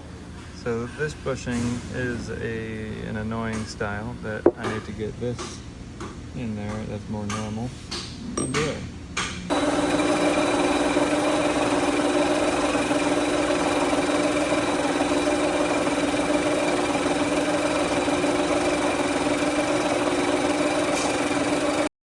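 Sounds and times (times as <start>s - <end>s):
machine tool humming and whining: 9.5s - 21.9s.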